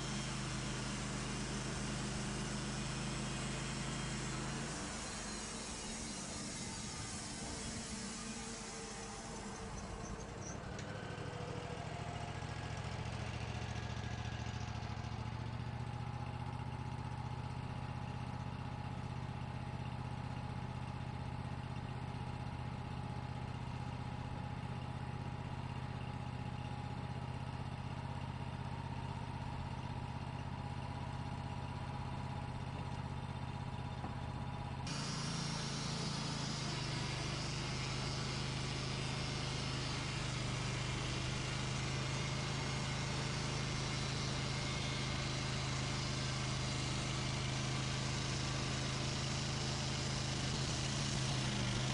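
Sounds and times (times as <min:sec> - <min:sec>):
hiss: 0:00.0 - 0:11.4, 0:34.9 - 0:51.9
sawmill engine running: 0:00.0 - 0:51.9.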